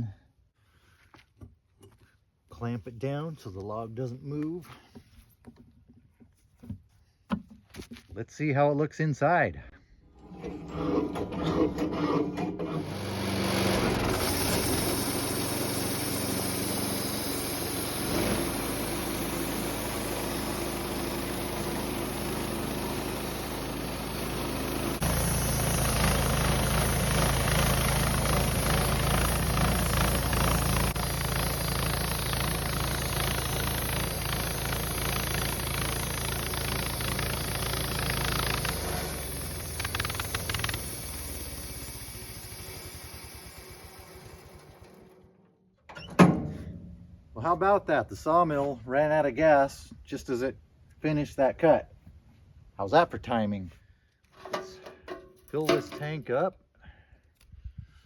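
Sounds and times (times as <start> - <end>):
sawmill engine cutting log: 10.2 - 45.4.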